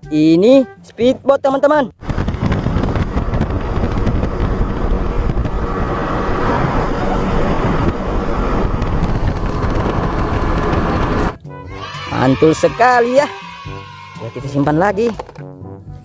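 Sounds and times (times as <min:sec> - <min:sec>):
rush of wind and water: 0:02.0 - 0:11.4
speedboat engine: 0:02.0 - 0:11.4.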